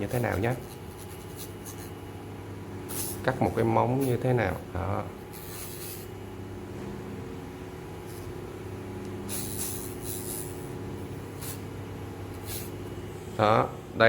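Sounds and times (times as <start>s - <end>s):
fingernail grinding hiss: 0.0s - 2.0s, 2.9s - 4.3s, 5.2s - 6.2s, 8.0s - 8.3s, 9.2s - 13.0s.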